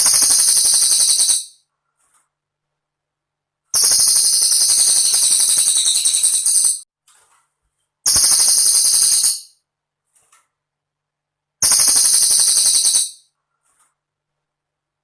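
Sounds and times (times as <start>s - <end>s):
bird rattling trills: 3.8s - 6.8s, 8.1s - 9.5s, 11.6s - 13.2s.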